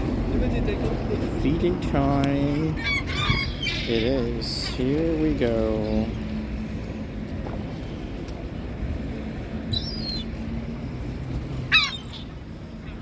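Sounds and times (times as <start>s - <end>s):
gulls calling: 2.4s - 6.3s, 9.5s - 13.0s.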